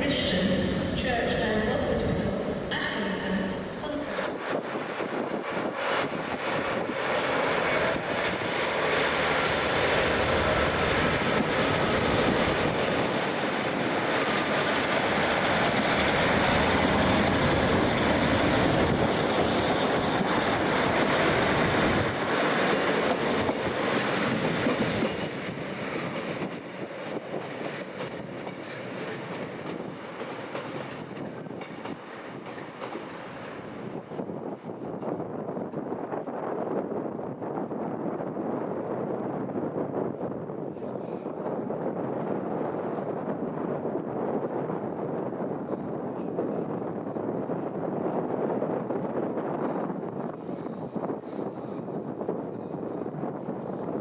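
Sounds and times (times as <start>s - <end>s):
train rumbling past: 0.0s - 35.2s.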